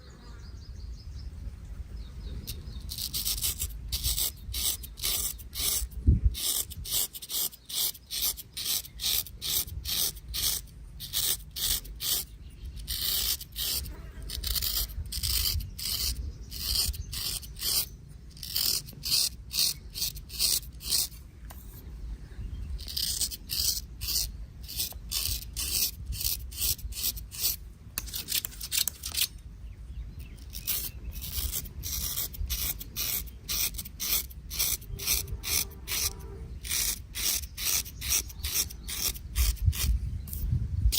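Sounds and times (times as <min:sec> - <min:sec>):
razor scraping hair: 0:02.5 - 0:21.8, 0:22.8 - 0:29.4, 0:30.2 - 0:40.5.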